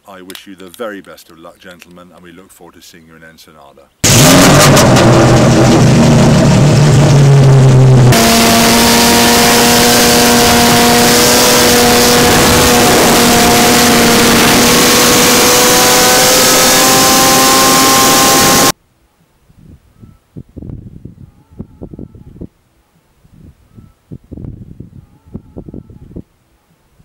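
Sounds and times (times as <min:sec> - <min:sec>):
loud rushing noise: 0:04.0 - 0:18.7
race car engine: 0:04.0 - 0:18.8.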